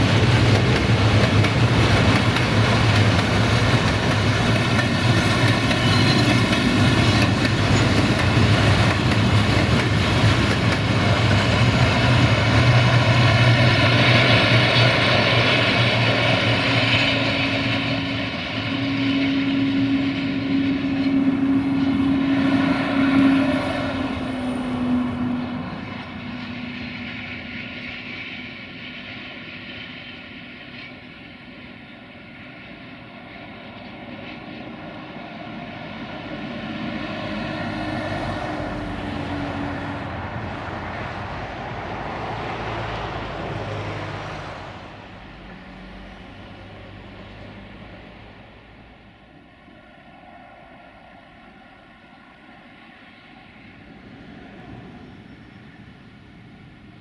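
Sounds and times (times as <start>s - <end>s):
engine drone: 0.0s - 28.8s
freight train rolling past: 0.0s - 57.0s.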